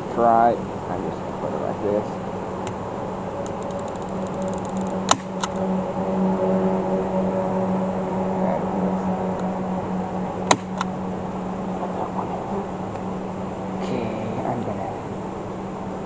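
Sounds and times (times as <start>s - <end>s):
bees buzzing: 0.0s - 16.0s
sharp clicks: 3.4s - 5.6s.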